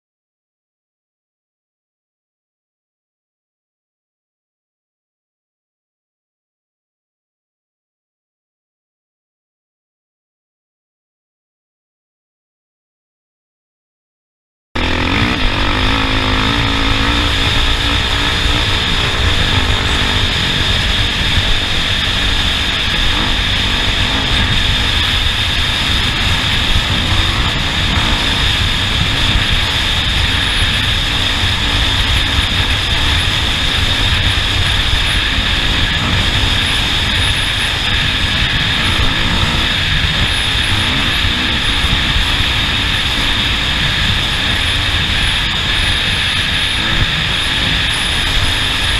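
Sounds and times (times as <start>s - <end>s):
off-road vehicle engine roaring: 14.8s - 48.9s.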